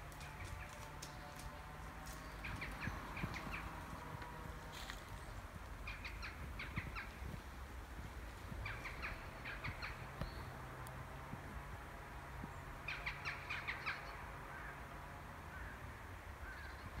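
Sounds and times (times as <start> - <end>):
bird harsh chattering calls: 2.2 - 3.9, 5.2 - 7.2, 8.6 - 10.5.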